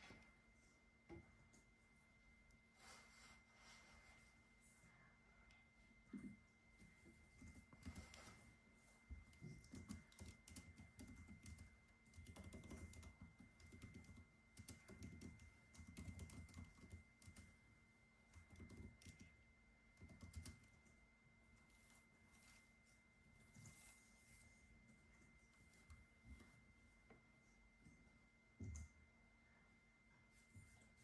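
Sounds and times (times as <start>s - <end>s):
typing on computer keyboard: 9.3s - 17.6s, 18.3s - 19.4s, 20.0s - 20.8s.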